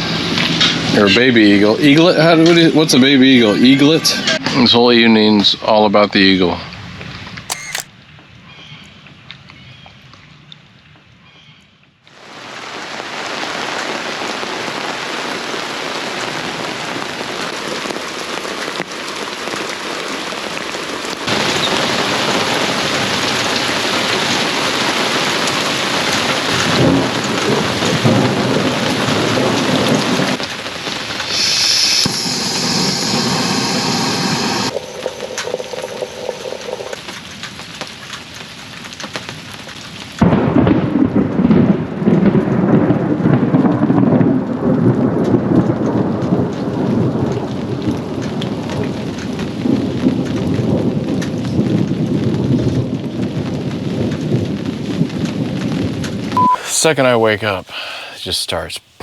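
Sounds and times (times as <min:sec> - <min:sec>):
heavy rain pouring: 0:12.2 - 0:31.2, 0:32.2 - 0:59.0.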